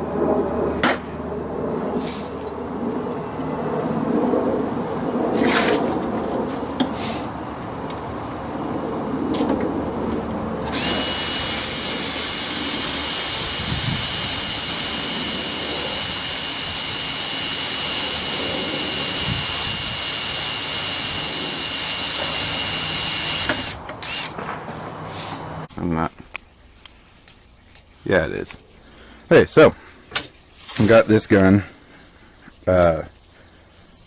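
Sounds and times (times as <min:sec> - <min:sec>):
power tool motor whining: 0:10.6 - 0:24.4.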